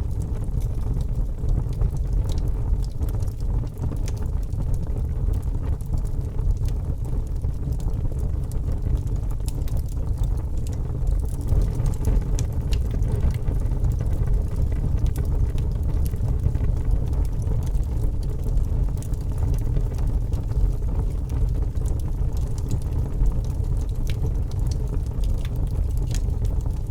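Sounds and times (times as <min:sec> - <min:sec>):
fire crackles and pops: 0:00.0 - 0:26.9
fire flames rumbling: 0:00.0 - 0:26.9.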